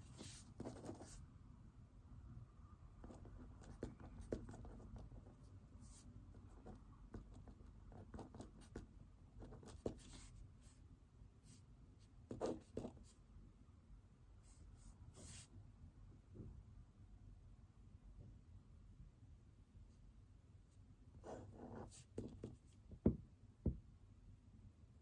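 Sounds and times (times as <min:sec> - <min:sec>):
pen scratching on paper: 0:00.0 - 0:01.2, 0:03.0 - 0:10.8, 0:12.3 - 0:13.2, 0:15.2 - 0:15.5, 0:21.2 - 0:22.8.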